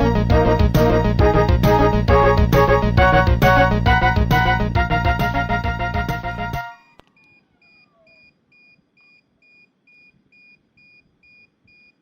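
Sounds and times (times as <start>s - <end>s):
music: 0.0s - 7.0s.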